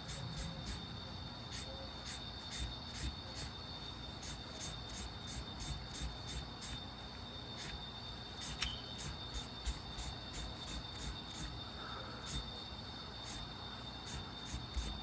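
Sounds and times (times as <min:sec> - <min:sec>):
pencil sketching on paper: 0:00.0 - 0:00.8, 0:01.4 - 0:03.5, 0:04.2 - 0:06.8, 0:08.4 - 0:11.5, 0:13.2 - 0:15.0.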